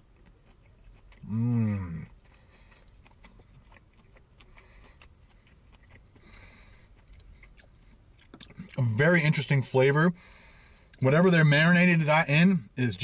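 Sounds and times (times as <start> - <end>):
quiet chewing: 0.0 - 8.9
man humming: 1.2 - 2.1.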